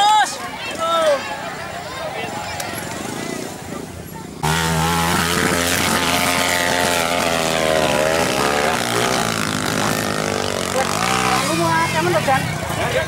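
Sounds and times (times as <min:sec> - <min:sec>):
dirt bike engine revving: 0:04.3 - 0:13.0.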